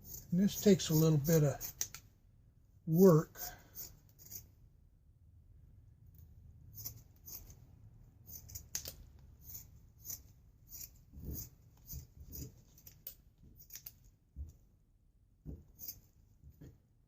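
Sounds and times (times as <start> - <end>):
scissors snipping cloth: 1.3 - 2.0, 8.3 - 14.0.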